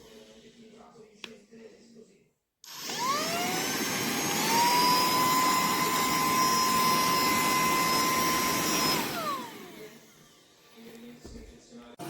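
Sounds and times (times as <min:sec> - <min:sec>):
handheld vacuum cleaner whining: 0:02.6 - 0:11.6.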